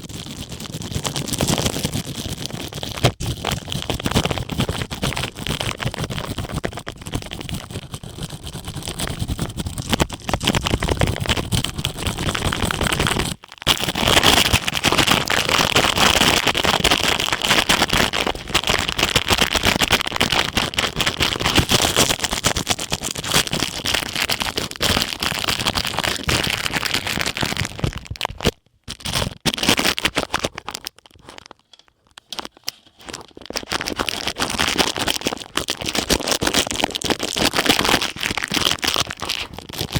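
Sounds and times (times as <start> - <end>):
ear pick scraping plastic cap: 27.6 - 36.7.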